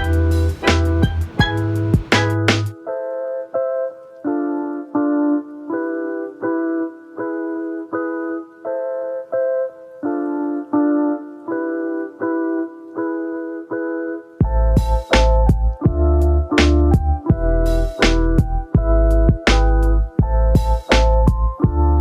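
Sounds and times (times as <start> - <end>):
piano playing slow chords: 0.0 - 22.0.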